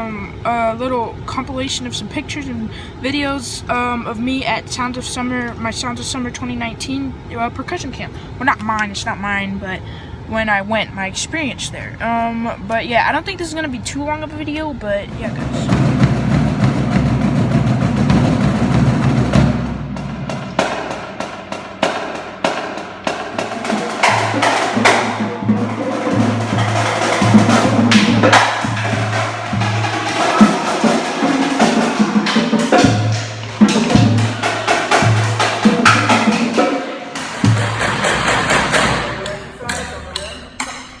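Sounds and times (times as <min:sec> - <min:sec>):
rapid drum strokes: 0:15.1 - 0:40.7.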